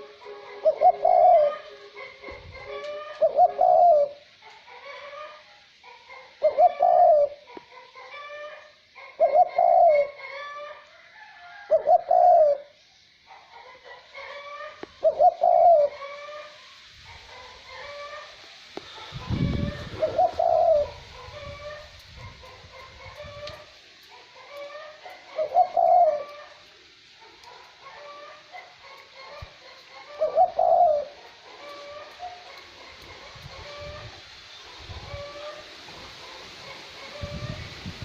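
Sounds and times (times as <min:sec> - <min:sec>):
dove cooing: 0:00.0 - 0:05.4, 0:06.1 - 0:07.5, 0:08.1 - 0:10.7, 0:11.7 - 0:12.8, 0:13.7 - 0:16.5, 0:17.3 - 0:26.7, 0:27.3 - 0:34.1
wind: 0:00.0 - 0:38.0.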